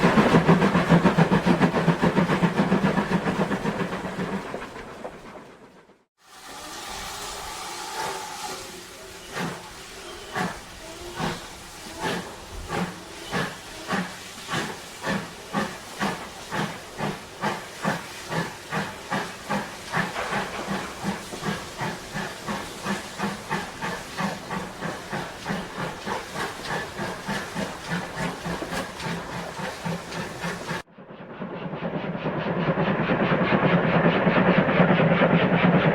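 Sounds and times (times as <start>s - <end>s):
steam hiss: 0.0s - 4.9s, 6.2s - 30.9s
steam locomotive chuffing: 0.0s - 35.9s.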